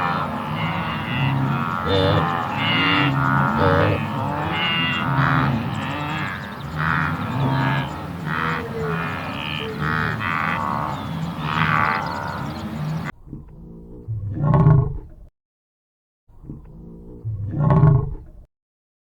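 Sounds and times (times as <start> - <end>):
hoofed animal calling: 0.0 - 15.1.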